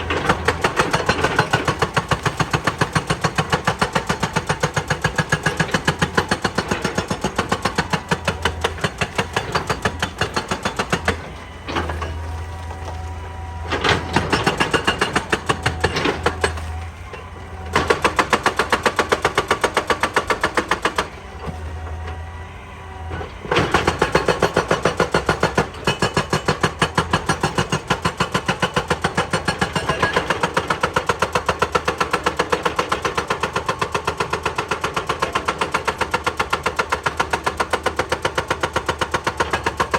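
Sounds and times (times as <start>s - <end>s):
hydraulic rock breaker hammering: 0.0s - 22.4s, 23.0s - 39.9s
excavator engine running: 0.0s - 39.9s.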